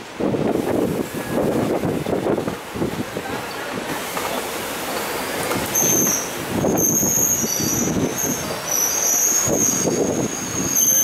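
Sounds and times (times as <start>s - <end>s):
train wheels rumbling on rails: 0.0s - 11.0s
brake squeal: 3.4s - 11.0s.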